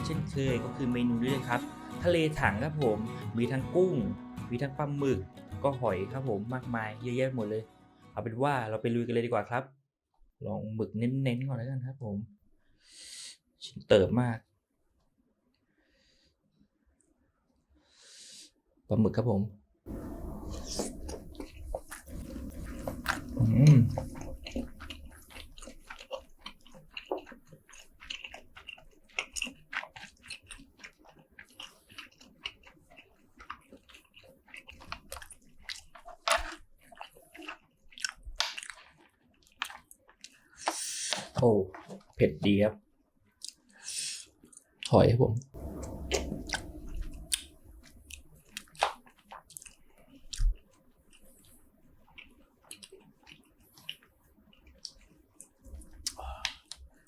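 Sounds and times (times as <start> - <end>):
close chewing of shellfish: 19.9 - 42.2, 43.3 - 44.9, 45.6 - 57.0
soft crunching bites: 19.9 - 42.2, 45.6 - 57.0
wet mouth clicks and smacks: 20.6 - 42.1, 43.4 - 43.7, 48.1 - 51.5, 52.1 - 57.0
wet mouth smacks: 48.1 - 50.6.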